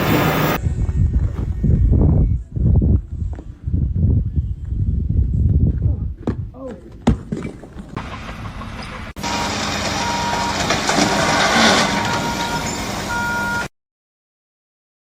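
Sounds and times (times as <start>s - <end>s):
loud machinery noise: 0.0s - 0.6s, 8.0s - 13.6s
high electronic beeps: 9.2s - 10.6s, 12.0s - 13.7s.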